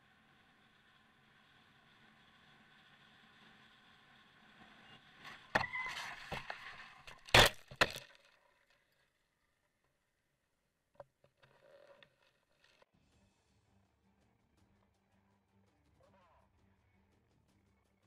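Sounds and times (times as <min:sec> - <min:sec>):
tyre squeal: 0:04.6 - 0:07.1.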